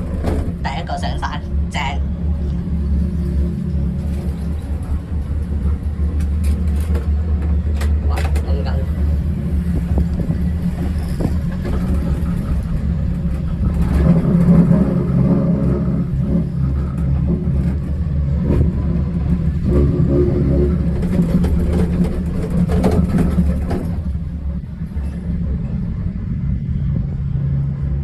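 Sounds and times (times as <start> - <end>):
cable car hum and rumble: 0.0 - 28.0
clicks and rattles: 4.0 - 8.9, 9.7 - 25.2.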